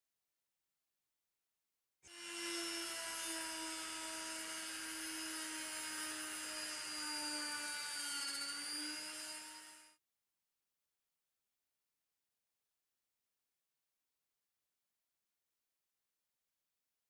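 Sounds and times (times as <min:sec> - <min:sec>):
small electric motor whining: 0:02.0 - 0:10.0.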